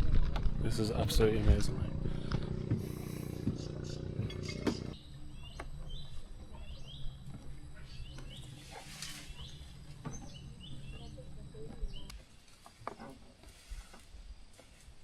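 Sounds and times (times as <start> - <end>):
low steady hum: 0.0 - 12.2
birds chirping: 0.7 - 12.3.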